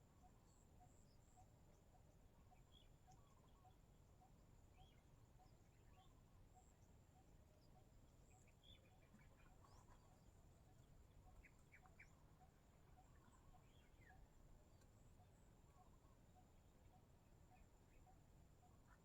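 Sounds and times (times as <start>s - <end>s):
soft regular tick: 14.7s - 15.0s.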